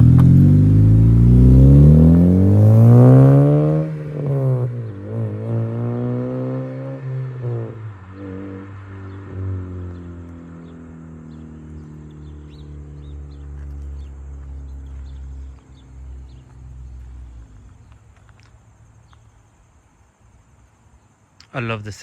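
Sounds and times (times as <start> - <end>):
car exhaust driving off: 0.0 - 18.0
faint birds chirping: 7.7 - 22.0.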